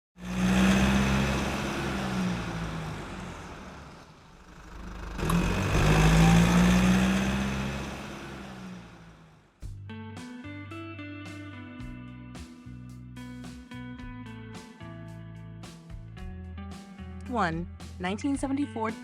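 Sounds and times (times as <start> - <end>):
car engine running: 0.2 - 9.8.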